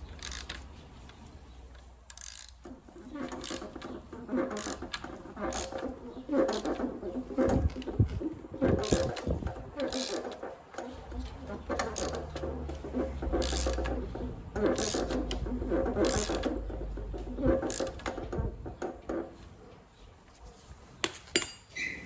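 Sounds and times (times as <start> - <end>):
ratchet wrench clicking: 0.2 - 0.6, 2.1 - 2.6, 13.2 - 13.9, 14.7 - 15.4.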